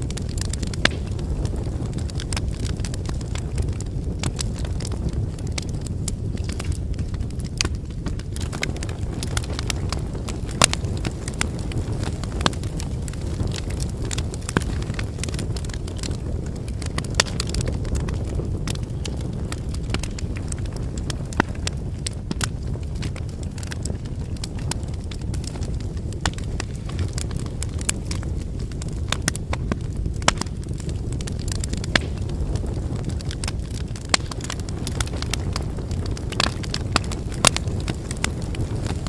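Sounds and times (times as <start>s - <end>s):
logs crackling and popping: 0.0s - 39.0s
low rumble of flames: 0.0s - 39.0s.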